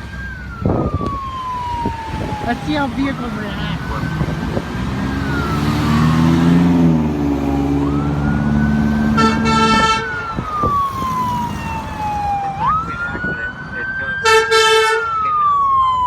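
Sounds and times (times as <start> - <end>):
fire truck siren wailing: 0.0 - 16.0
truck engine passing: 0.0 - 16.0
air horn blast: 9.1 - 10.2, 14.2 - 15.1.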